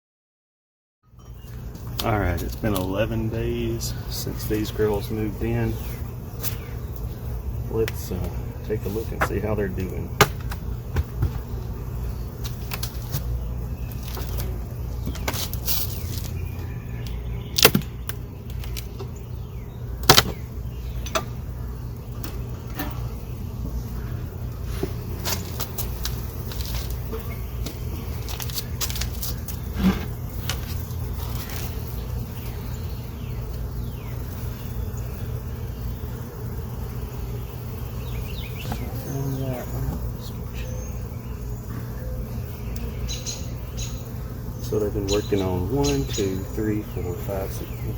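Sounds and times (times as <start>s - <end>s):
steady low hum: 1.2s - 47.9s
honey bees buzzing: 1.4s - 47.9s
wood cracking and knocking: 17.6s - 18.0s.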